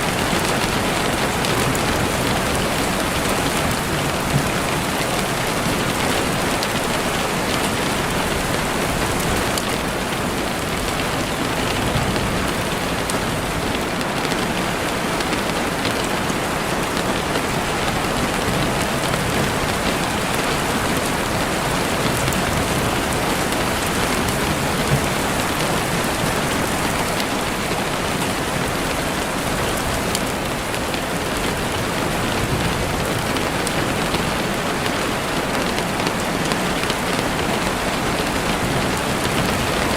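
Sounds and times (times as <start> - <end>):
heavy rain on a window: 0.0 - 39.9.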